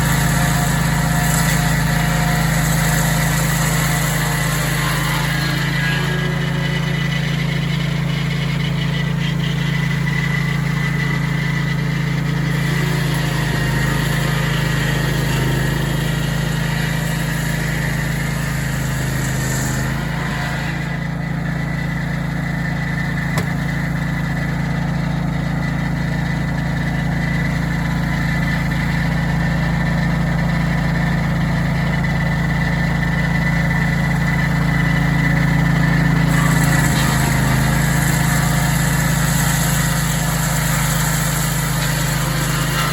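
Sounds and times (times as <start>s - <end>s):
sawmill engine running: 0.0s - 42.9s.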